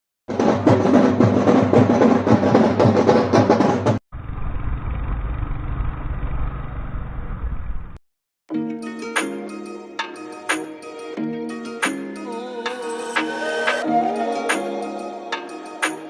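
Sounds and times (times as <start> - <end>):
drum-heavy intro music: 0.3 - 4.0, 8.5 - 16.0.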